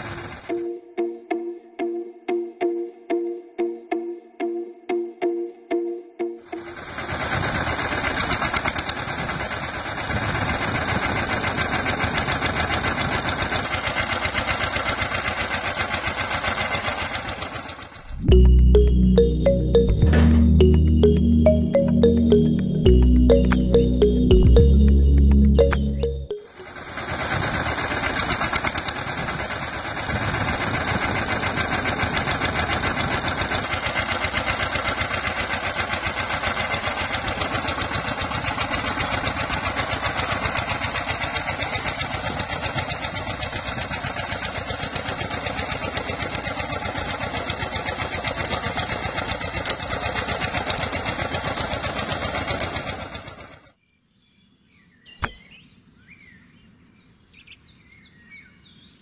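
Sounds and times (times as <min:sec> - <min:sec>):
small electric motor rattling: 0:06.9 - 0:18.0.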